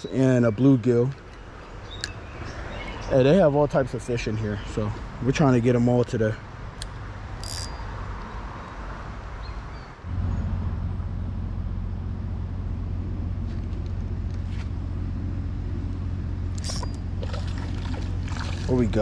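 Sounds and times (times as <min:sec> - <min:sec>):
steady low rumble: 0:10.0 - 0:19.0.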